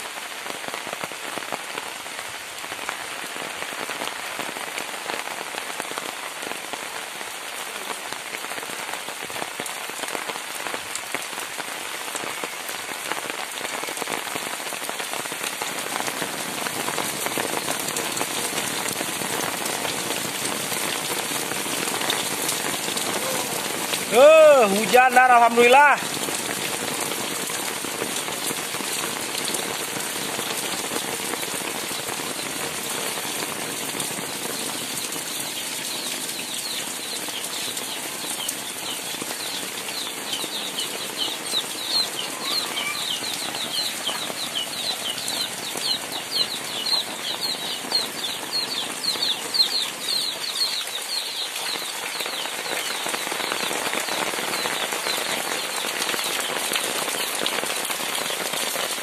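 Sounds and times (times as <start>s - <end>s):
heavy rain: 0.0s - 59.0s
bird chirping: 34.6s - 53.7s.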